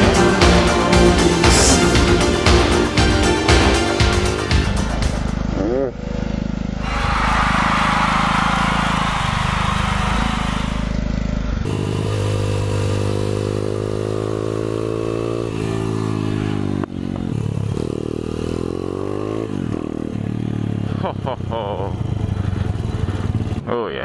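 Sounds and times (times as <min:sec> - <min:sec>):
motorcycle engine accelerating: 0:00.0 - 0:24.0
loud rushing noise: 0:06.8 - 0:11.0.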